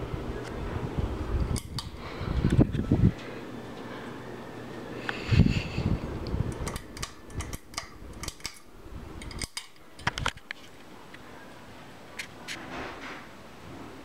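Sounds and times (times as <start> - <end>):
ceiling fan running: 0.0 - 14.0.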